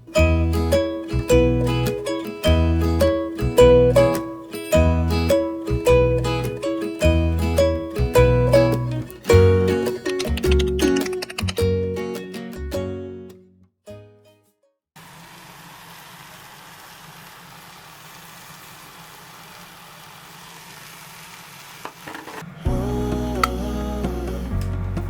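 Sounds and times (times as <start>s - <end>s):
background music: 0.1s - 13.1s, 22.7s - 25.0s.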